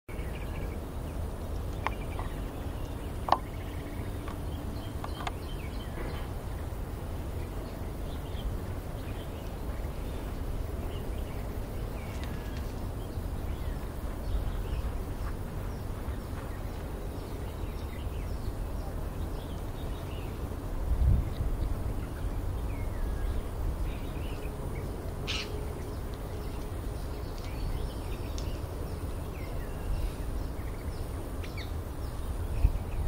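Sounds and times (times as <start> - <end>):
steady low rumble: 0.1 - 33.0
faint bird chirps: 21.2 - 33.0.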